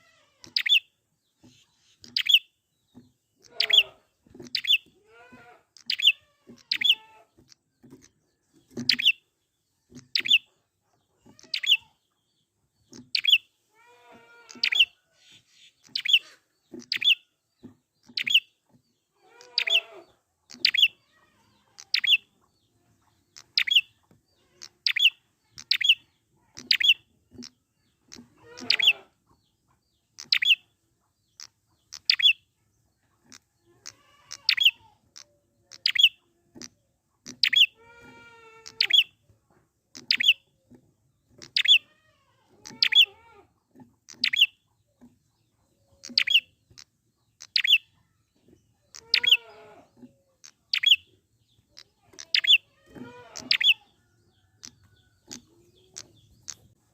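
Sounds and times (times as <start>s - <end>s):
lower chattering bird call: 3.4s - 9.2s, 11.2s - 12.1s, 14.4s - 17.2s, 19.2s - 32.4s, 33.2s - 39.2s, 40.0s - 43.4s, 44.1s - 56.8s.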